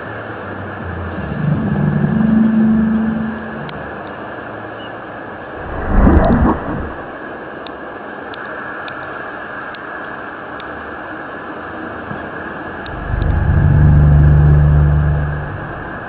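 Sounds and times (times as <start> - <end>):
low droning groan: 0.5 - 4.1, 12.9 - 16.0.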